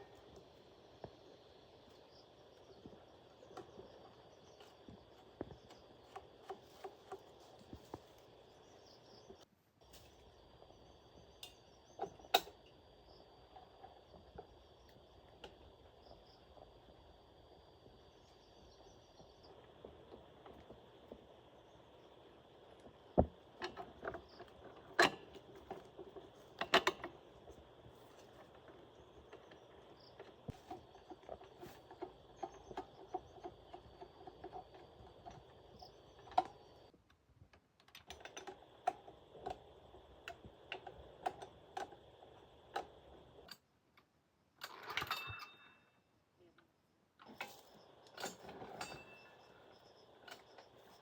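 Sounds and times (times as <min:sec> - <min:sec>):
high insect drone: 0:00.0 - 0:36.9.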